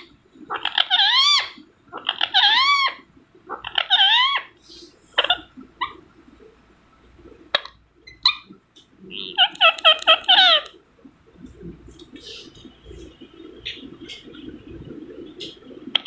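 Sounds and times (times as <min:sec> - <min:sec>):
parrot squawking: 0:00.5 - 0:04.6, 0:09.2 - 0:10.7.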